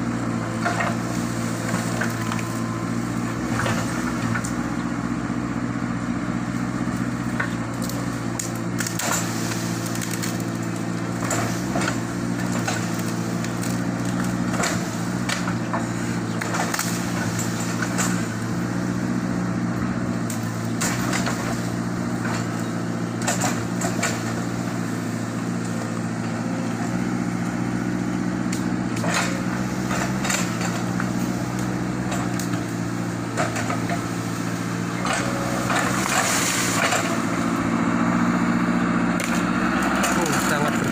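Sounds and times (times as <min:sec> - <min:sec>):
excavator diesel engine: 0:00.0 - 0:40.9
wood cracking and splintering: 0:00.2 - 0:04.6, 0:06.7 - 0:37.6, 0:39.1 - 0:40.9.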